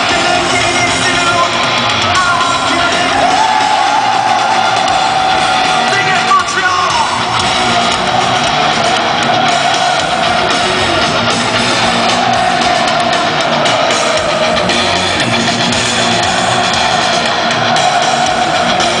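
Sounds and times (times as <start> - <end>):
distorted electric guitars: 0.0 - 19.0
drum kit: 0.0 - 19.0.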